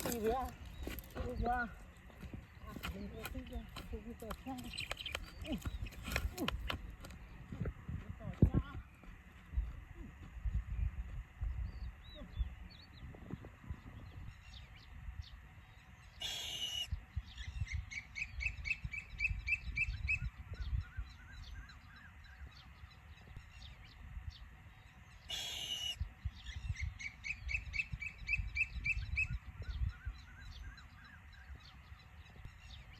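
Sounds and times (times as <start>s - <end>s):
bird squawking: 16.2s - 16.9s, 25.3s - 26.0s
short high bird calls: 25.3s - 26.0s.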